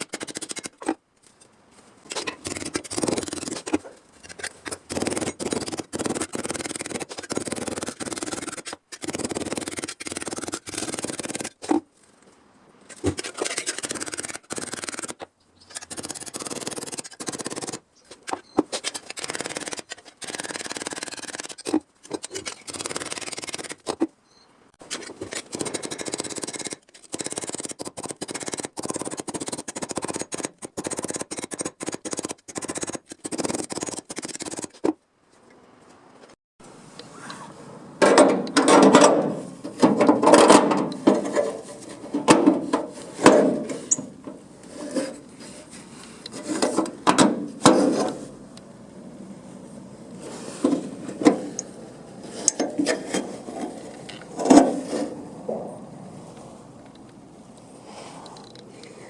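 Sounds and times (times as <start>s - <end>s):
sheet metal scraping and cutting: 38.3s - 48.4s, 52.2s - 55.6s.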